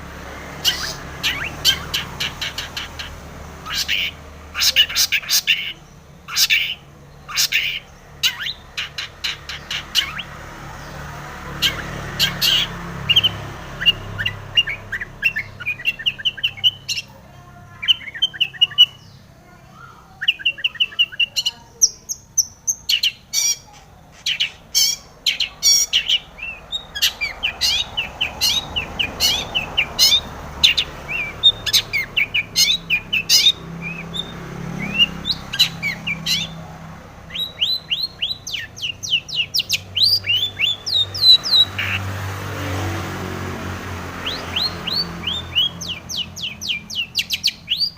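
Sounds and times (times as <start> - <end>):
shrike singing: 0.0 - 42.1, 44.2 - 47.9.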